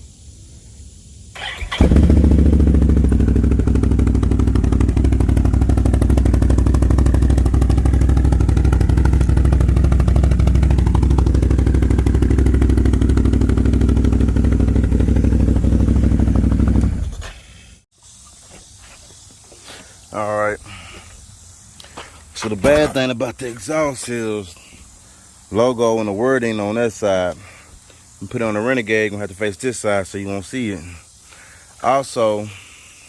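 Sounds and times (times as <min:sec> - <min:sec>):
atv engine idling: 0:01.4 - 0:17.7.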